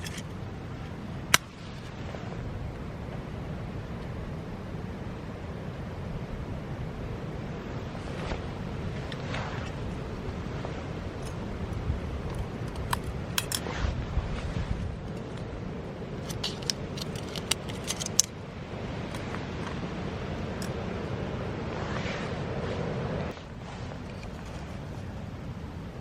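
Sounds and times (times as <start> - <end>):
steady low rumble: 0.0 - 26.0
light metallic clicks and clinks: 12.3 - 13.7, 16.2 - 18.4.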